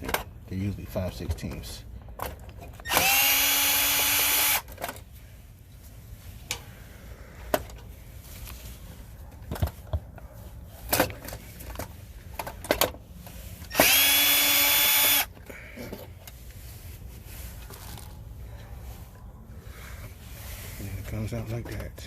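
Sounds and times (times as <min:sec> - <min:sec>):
cordless drill motor whine: 0:02.8 - 0:04.7, 0:13.7 - 0:15.3
tool and parts clicking: 0:13.7 - 0:16.4.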